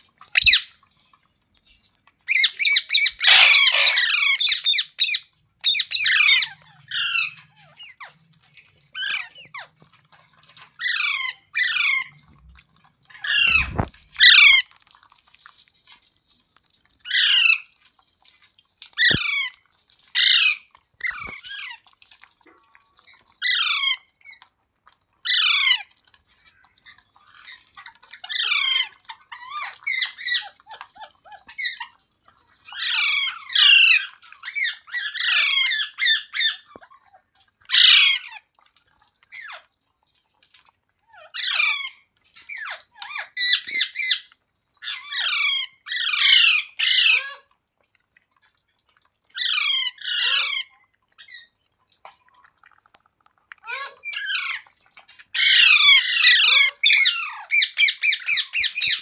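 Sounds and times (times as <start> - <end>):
parrot squawking: 0.4 - 0.7, 2.3 - 8.2, 9.0 - 9.7, 10.8 - 12.2, 13.1 - 14.7, 17.0 - 17.7, 18.9 - 21.8, 23.4 - 24.4, 25.2 - 25.9, 27.3 - 31.9, 32.7 - 36.9, 37.7 - 38.4, 41.1 - 47.4, 49.4 - 51.5, 53.6 - 54.7, 55.3 - 59.0.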